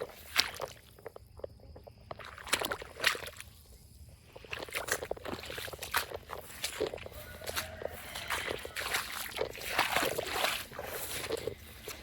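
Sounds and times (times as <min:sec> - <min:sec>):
footsteps in wet mud: 0:00.0 - 0:12.0.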